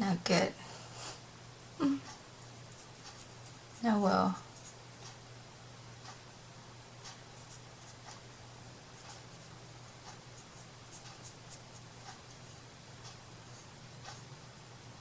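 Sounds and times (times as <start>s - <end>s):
low electrical hum: 0.0s - 15.0s
faint scratching strokes: 2.4s - 5.1s, 7.3s - 8.2s, 8.9s - 12.7s, 13.4s - 14.3s.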